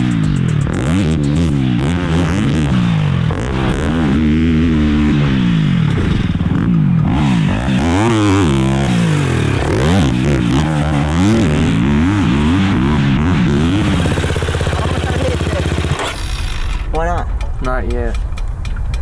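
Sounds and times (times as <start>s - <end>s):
off-road motorcycle engines revving: 0.0s - 19.0s.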